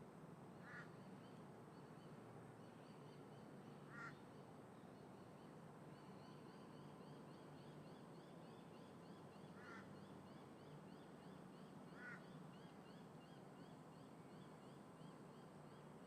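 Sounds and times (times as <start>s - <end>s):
wind: 0.0s - 16.0s
crow cawing: 12.0s - 12.2s.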